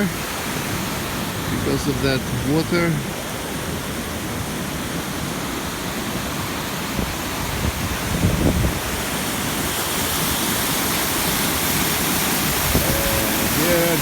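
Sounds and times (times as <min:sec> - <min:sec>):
waterfall roar: 0:00.0 - 0:14.0.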